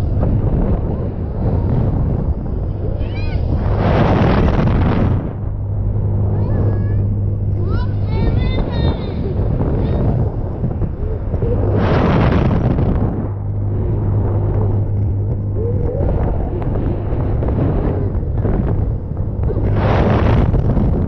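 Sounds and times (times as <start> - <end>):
low hum from ride: 0.0 - 21.0
wind rushing over microphone: 0.0 - 21.0.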